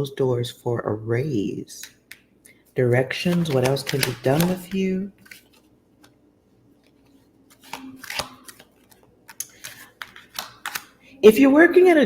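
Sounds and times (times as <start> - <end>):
cards clicking and rustling: 3.0 - 6.2, 6.8 - 11.0.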